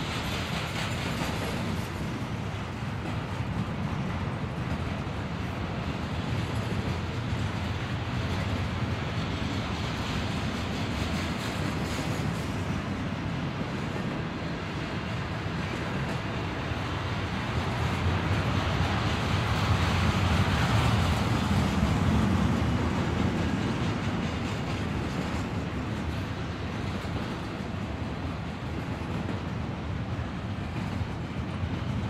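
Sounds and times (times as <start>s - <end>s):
steel train wheels rumbling on rail: 0.0s - 32.0s.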